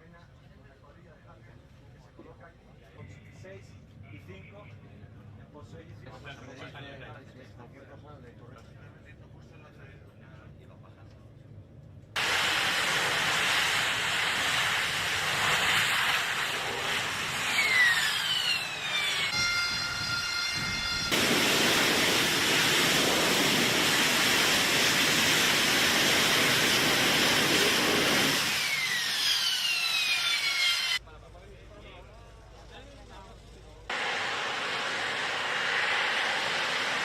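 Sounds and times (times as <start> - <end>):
jet engines roaring: 12.2 - 31.0, 33.9 - 37.0.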